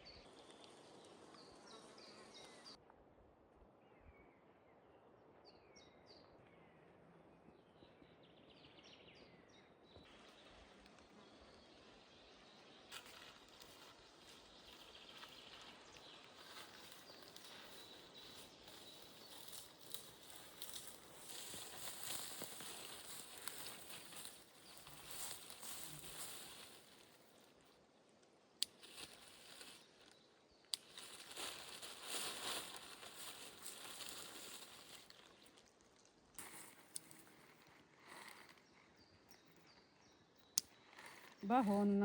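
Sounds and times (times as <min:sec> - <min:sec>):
rustling of undergrowth: 0:10.0 - 0:42.0.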